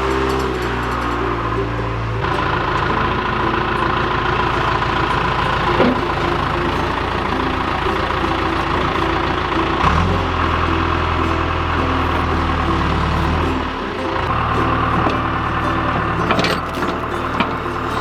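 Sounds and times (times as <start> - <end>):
diesel engine running: 0.0 - 18.0
brief clunks: 16.3 - 18.0.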